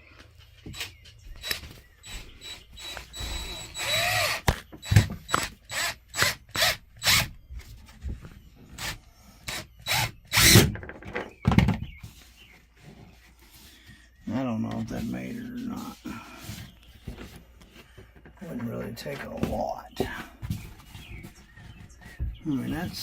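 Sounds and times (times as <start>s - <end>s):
power drill driving screw: 0.7s - 7.4s, 8.8s - 10.7s
knocks and bumps: 10.5s - 12.2s, 17.1s - 23.0s.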